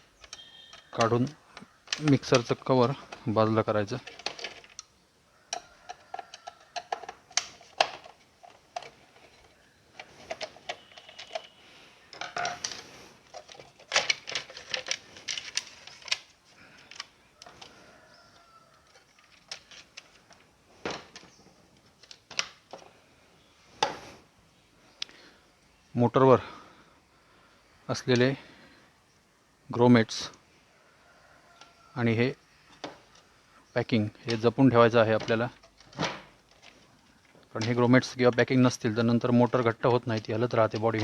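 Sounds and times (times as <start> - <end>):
plastic parts clicking and knocking: 0.0 - 23.0, 31.6 - 33.3, 33.9 - 41.0.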